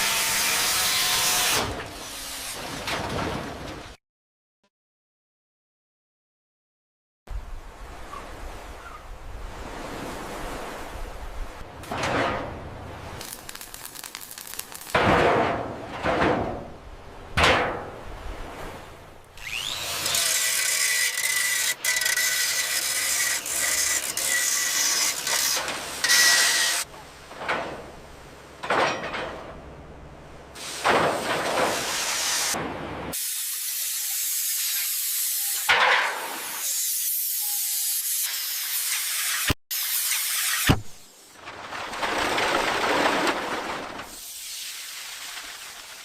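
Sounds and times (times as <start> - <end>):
steady spraying hiss: 44.1 - 46.0.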